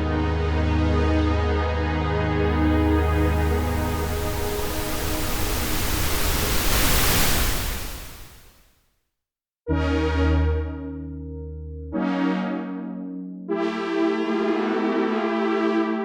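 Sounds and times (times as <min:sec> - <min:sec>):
synthesizer pad: 0:00.0 - 0:08.6
synthesizer chord: 0:02.2 - 0:08.1, 0:09.7 - 0:16.0.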